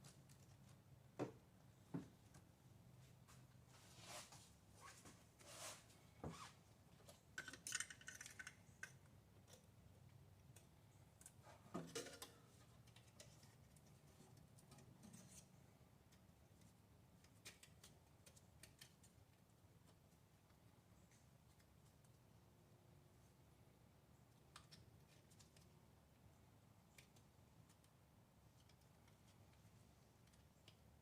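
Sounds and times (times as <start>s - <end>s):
clicks and rattles of tools: 7.1s - 9.7s, 10.4s - 15.4s.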